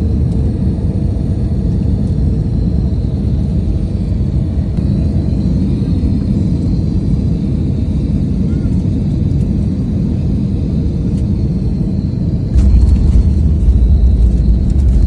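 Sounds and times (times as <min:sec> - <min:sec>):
airliner engines and airflow rumble: 0:00.0 - 0:15.0
faint high whine: 0:09.8 - 0:15.0.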